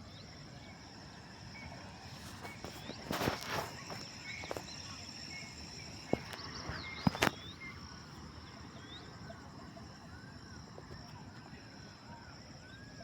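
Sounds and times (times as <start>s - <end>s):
high insect drone: 0.0s - 13.0s
small birds chirping: 0.1s - 11.4s.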